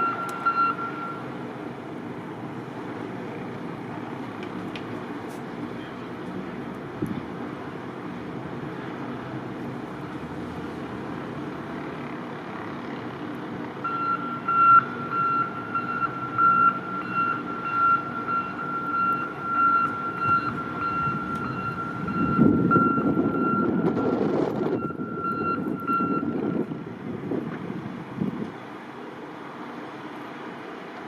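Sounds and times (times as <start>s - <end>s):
reversing alarm beeping: 0.0s - 1.4s, 13.8s - 26.6s
diesel engine rumble: 0.0s - 31.0s.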